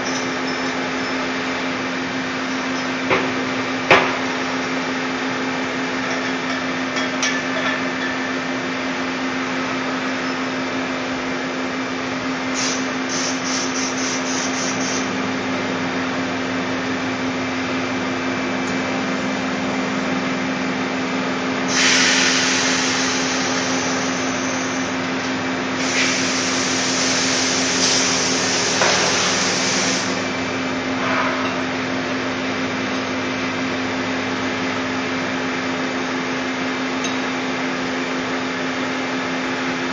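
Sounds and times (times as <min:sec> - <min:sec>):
lathe machine hum: 0:10.8 - 0:36.2
hissing bursts: 0:12.6 - 0:15.1, 0:21.7 - 0:24.6, 0:25.8 - 0:30.2.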